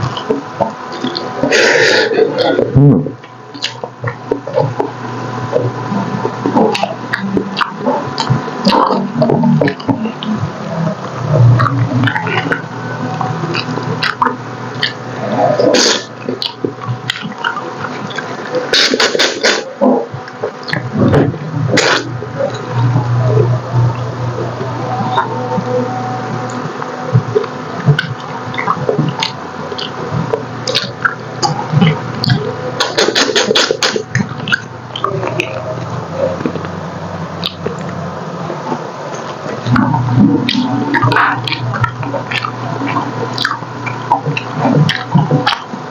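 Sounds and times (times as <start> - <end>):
chewing and lip-smacking: 0.0 - 45.9
person humming: 21.8 - 26.8.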